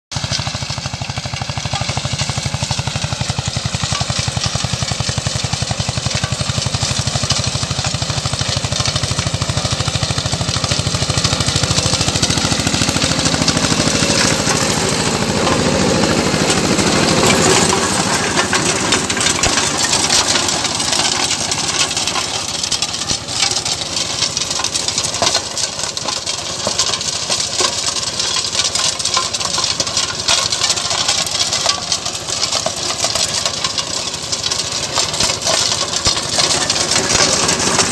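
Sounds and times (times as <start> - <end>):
tractor diesel engine chugging: 0.1 - 37.9.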